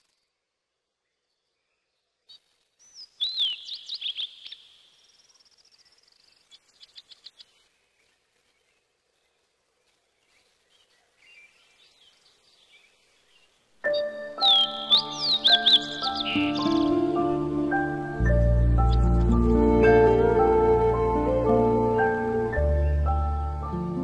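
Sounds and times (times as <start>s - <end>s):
bird whistles and chirps: 2.8s - 4.6s, 13.9s - 16.9s
rapid high bird trill: 13.9s - 17.0s.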